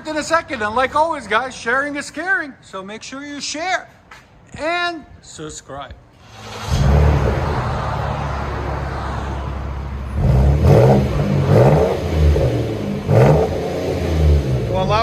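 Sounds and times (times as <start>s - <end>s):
car engine idling: 6.1s - 15.0s
engine throttle blips: 6.2s - 8.6s.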